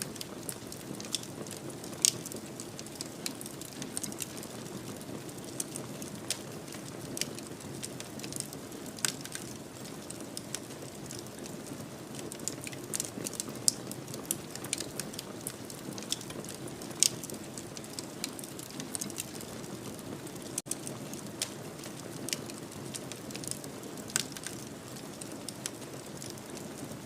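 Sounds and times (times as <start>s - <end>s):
wood fire crackling: 0.0s - 27.0s
flames rushing: 0.1s - 27.0s
sharp pops and snaps: 21.4s - 24.6s.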